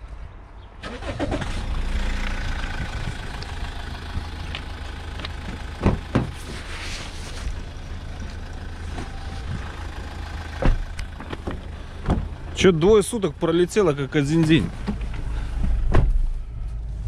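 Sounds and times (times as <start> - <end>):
vehicle engine idling: 0.9 - 17.0.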